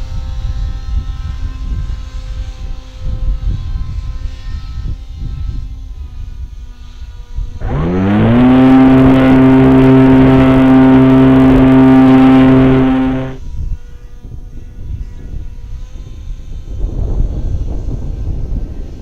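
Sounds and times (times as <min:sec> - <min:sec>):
model motor and propeller whine: 0:07.6 - 0:13.4
wind noise on microphone: 0:07.6 - 0:13.4, 0:14.6 - 0:19.0.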